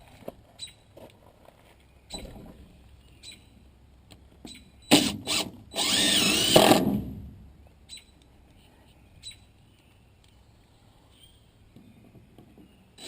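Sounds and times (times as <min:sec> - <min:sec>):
power drill whining: 0:04.9 - 0:07.0.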